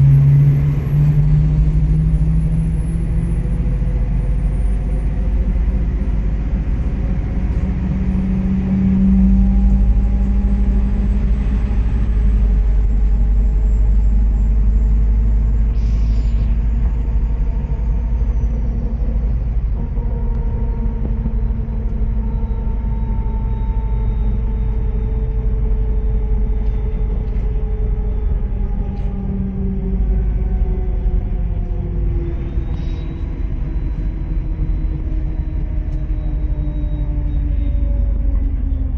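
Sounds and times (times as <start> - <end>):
bus engine drone: 0.0 - 38.9
drivetrain whine: 0.0 - 38.9.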